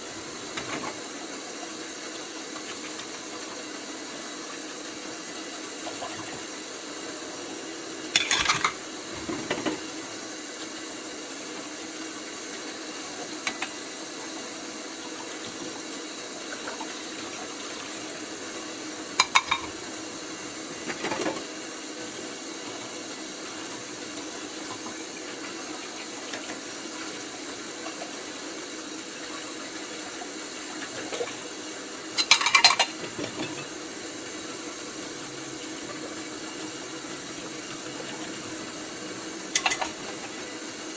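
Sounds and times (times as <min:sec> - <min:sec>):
dishes clinking at a sink: 0:08.1 - 0:09.8, 0:19.2 - 0:19.8, 0:32.2 - 0:33.8, 0:39.5 - 0:40.0.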